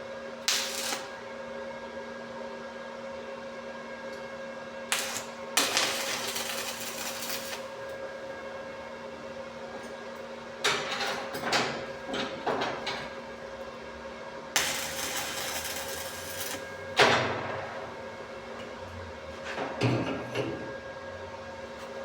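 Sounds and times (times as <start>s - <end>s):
arc welding crackling: 0.4s - 1.2s, 4.9s - 8.0s, 14.6s - 16.7s
welding machine humming: 0.4s - 1.3s, 4.9s - 8.8s, 14.5s - 17.0s.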